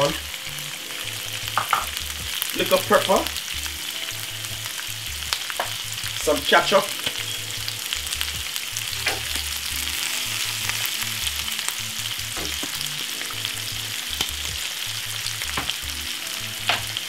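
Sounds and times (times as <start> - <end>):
oil crackling: 0.0 - 17.0
vegetables sizzling in a frying pan: 0.0 - 17.0.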